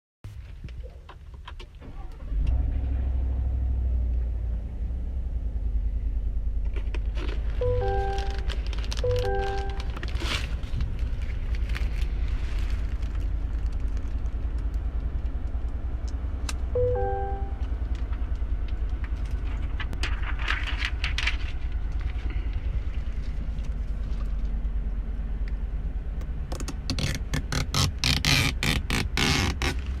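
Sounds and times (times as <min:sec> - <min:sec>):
steady low rumble: 0:00.3 - 0:30.0
plastic film peeling with crackles: 0:06.7 - 0:15.8, 0:19.2 - 0:24.6, 0:26.6 - 0:30.0
short musical tones: 0:07.6 - 0:10.6, 0:16.8 - 0:17.7.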